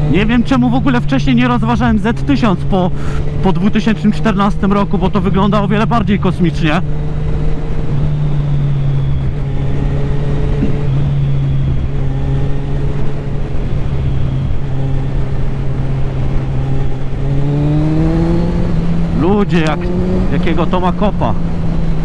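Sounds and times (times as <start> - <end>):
motorcycle engine running: 0.0 - 22.0
wind noise on microphone: 6.9 - 20.4.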